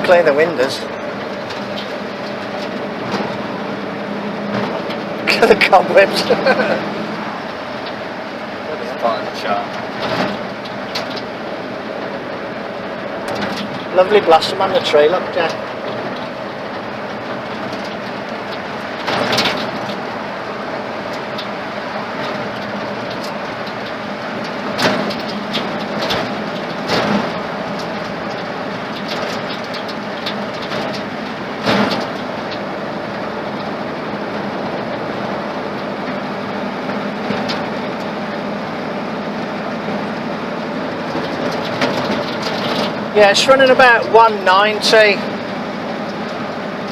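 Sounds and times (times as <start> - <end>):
road noise: 0.0 - 46.9
truck engine drone: 0.0 - 46.9
body knocks and rattles: 13.2 - 20.3, 21.1 - 32.7, 39.8 - 44.7.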